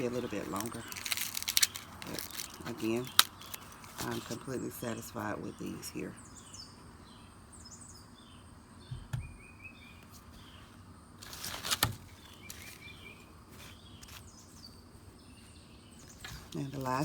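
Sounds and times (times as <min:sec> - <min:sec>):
loud rustling: 0:00.0 - 0:04.4, 0:11.2 - 0:14.3
small birds chirping: 0:00.0 - 0:17.0
soft thumps: 0:08.9 - 0:09.4.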